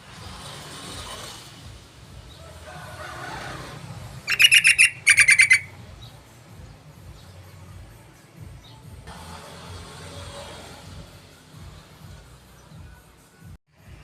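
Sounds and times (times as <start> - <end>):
bird chattering calls: 4.3 - 5.8.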